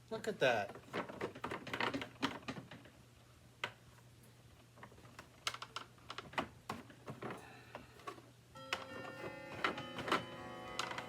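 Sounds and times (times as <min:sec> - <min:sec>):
plastic parts clicking: 0:04.8 - 0:07.4.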